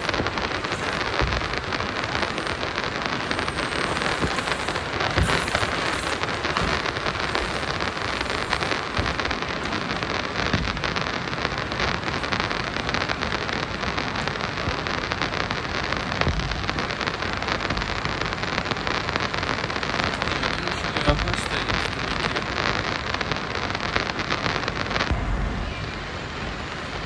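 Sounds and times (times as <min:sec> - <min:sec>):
train wheels rattling on rails: 0:00.0 - 0:15.0.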